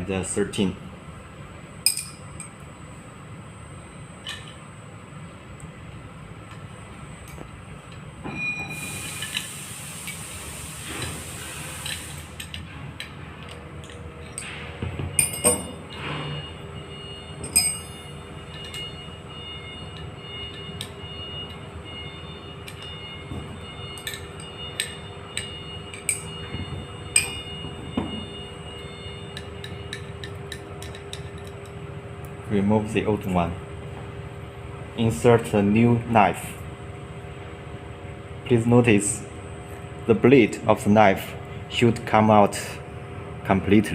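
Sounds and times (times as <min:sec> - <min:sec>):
spanners clinking on metal: 0:01.9 - 0:02.5, 0:15.2 - 0:16.0, 0:17.4 - 0:18.9, 0:23.9 - 0:26.3, 0:27.1 - 0:27.5, 0:29.3 - 0:31.7.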